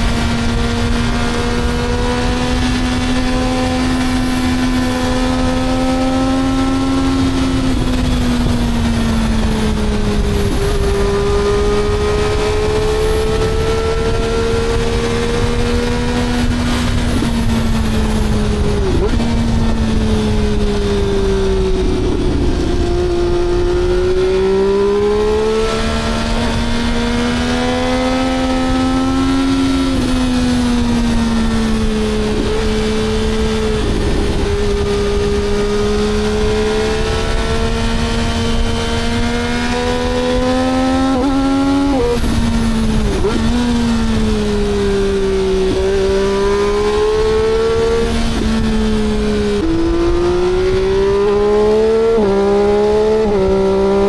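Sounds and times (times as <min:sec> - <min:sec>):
engine running at high revs: 0:00.0 - 0:54.0.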